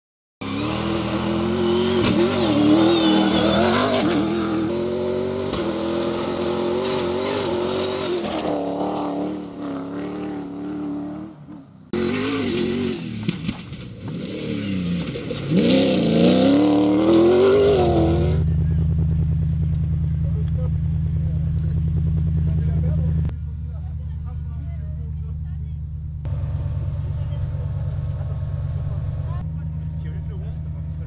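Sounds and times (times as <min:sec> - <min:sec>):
car engine revving hard: 0:00.4 - 0:11.3, 0:11.9 - 0:13.3, 0:14.1 - 0:18.4.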